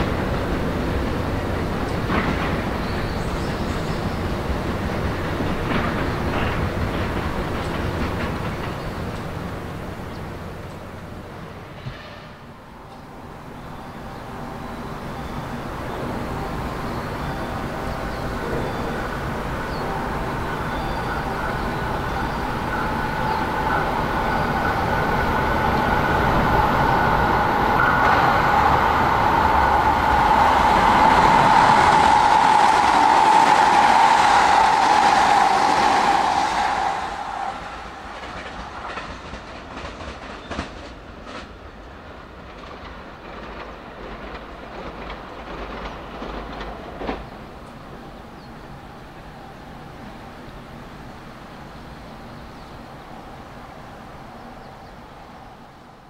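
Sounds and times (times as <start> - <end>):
wheels clicking over rail joints: 0.0 - 13.1, 15.0 - 48.8
rail rumble: 0.0 - 56.0
electric train motor whine: 13.1 - 39.0.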